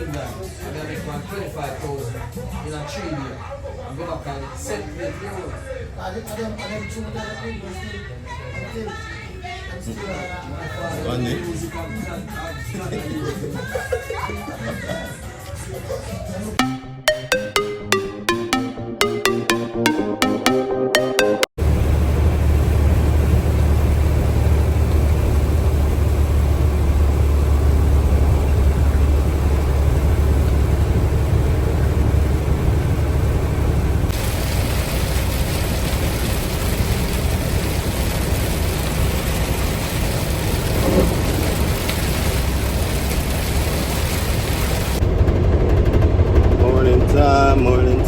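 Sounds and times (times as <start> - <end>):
truck engine and road noise: 21.6 - 46.5
rain and wet road hiss: 34.2 - 45.0.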